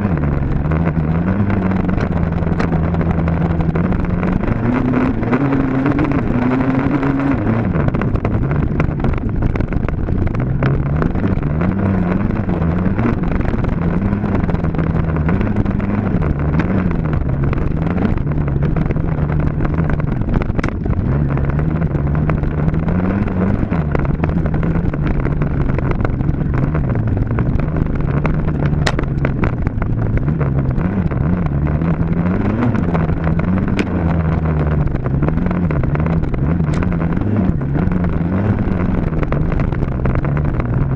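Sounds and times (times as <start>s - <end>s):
sharp clicks: 28.2s - 29.9s.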